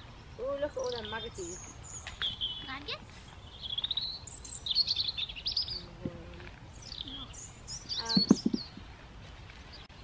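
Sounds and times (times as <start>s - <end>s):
songbirds chirping and trilling: 0.0s - 10.0s.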